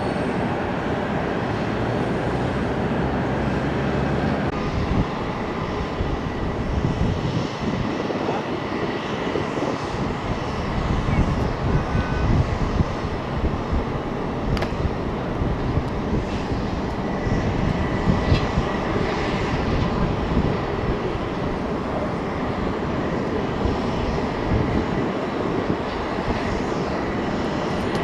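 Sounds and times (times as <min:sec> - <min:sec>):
jet engines rumbling: 0:00.0 - 0:28.0.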